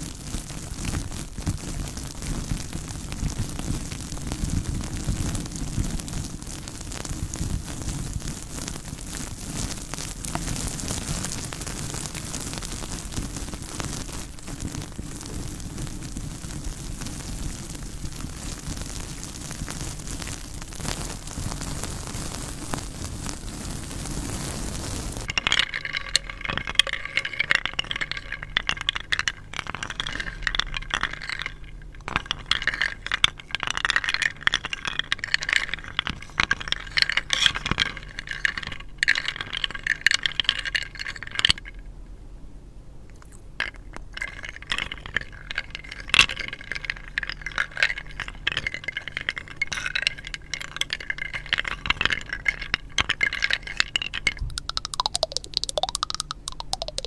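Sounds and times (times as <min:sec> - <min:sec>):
stones rubbing and knocking: 0:00.0 - 0:23.5, 0:24.2 - 0:41.6, 0:43.6 - 0:57.0
steady hiss: 0:00.0 - 0:28.4.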